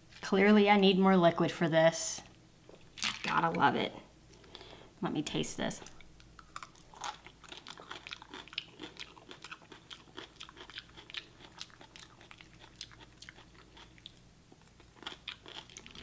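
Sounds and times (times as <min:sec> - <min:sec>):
person chewing wetly: 0:05.8 - 0:16.0.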